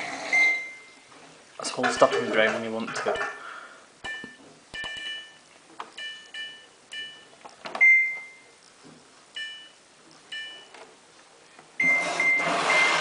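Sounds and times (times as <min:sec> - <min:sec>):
washing machine panel beeps: 0:06.0 - 0:08.5, 0:09.4 - 0:10.7, 0:11.8 - 0:13.0.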